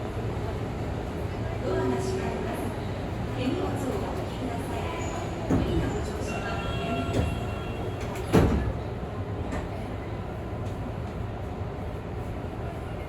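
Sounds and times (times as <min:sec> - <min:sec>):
hum of stopped train: 0:00.0 - 0:13.0
train sliding doors closing: 0:05.0 - 0:10.0.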